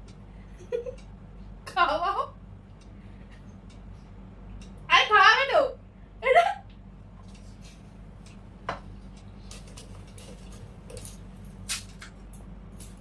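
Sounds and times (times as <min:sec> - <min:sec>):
steady low hum: 0:00.0 - 0:13.0
crunching of crisp snacks: 0:09.6 - 0:13.0.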